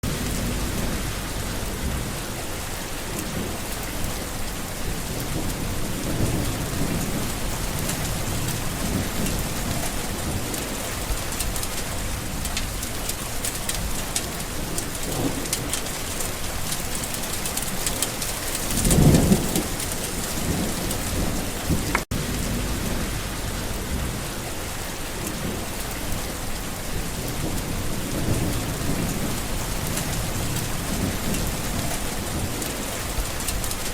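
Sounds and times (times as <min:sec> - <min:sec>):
low rumbling: 0:00.0 - 0:02.5, 0:05.0 - 0:10.5, 0:20.4 - 0:24.8, 0:26.9 - 0:32.6
rain falling on leaves: 0:00.0 - 0:33.9.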